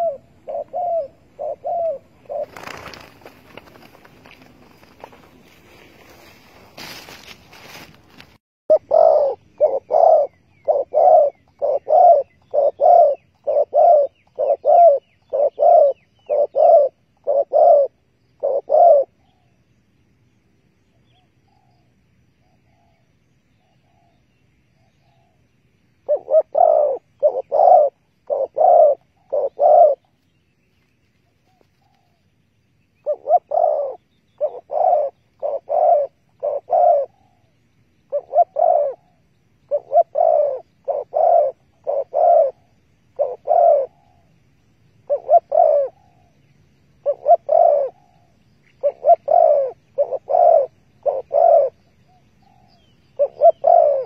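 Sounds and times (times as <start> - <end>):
dove cooing: 0.0 - 7.8, 8.7 - 19.6, 26.0 - 30.2, 33.0 - 44.4, 45.0 - 46.4, 47.0 - 54.0
small bird chirping: 8.7 - 19.8, 20.8 - 54.0.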